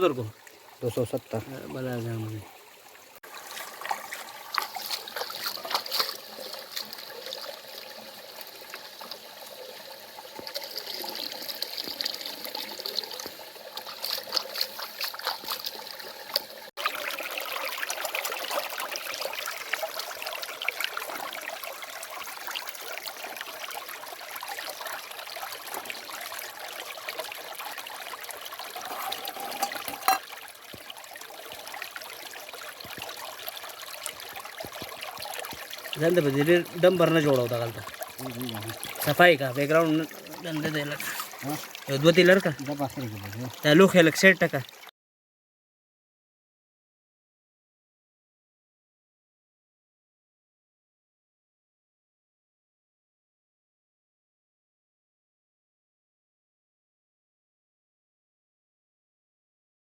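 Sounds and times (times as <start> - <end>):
water trickling: 0.0 - 44.9.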